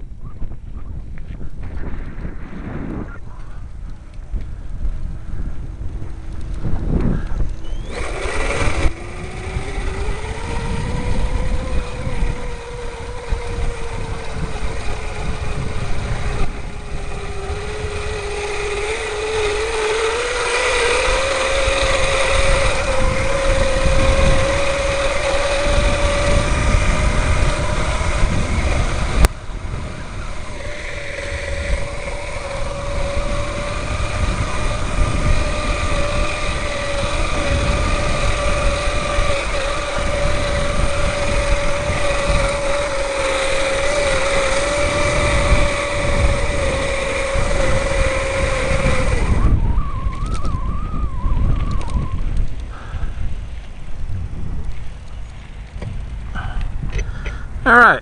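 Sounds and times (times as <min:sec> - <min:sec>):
electric bike motor whining: 0:00.0 - 0:58.0
wind and riding rumble: 0:00.0 - 0:58.0.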